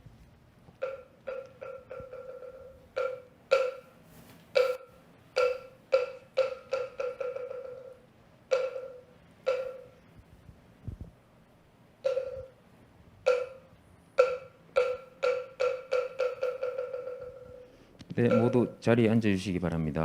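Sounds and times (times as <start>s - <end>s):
wooden temple block knocks: 18.3s - 18.8s.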